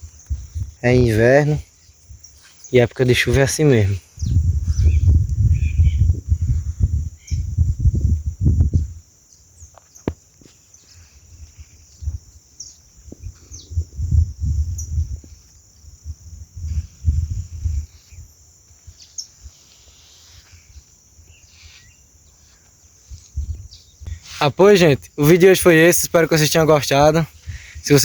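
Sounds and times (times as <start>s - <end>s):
wind buffeting microphone: 0.0s - 2.4s, 3.1s - 9.1s, 11.4s - 19.0s, 23.0s - 24.3s, 27.0s - 28.0s
insects chirring: 0.0s - 28.0s.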